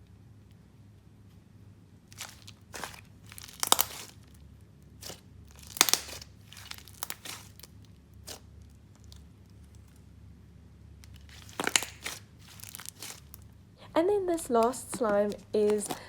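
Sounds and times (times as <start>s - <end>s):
slime being squeezed by hand: 2.2s - 4.3s, 5.0s - 9.1s, 11.2s - 13.4s.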